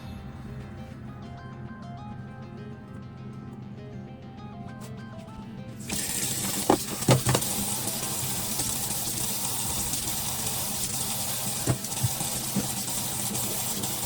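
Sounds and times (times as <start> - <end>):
tap water running into sink: 5.8 - 14.0
dishes knocking: 6.4 - 7.6.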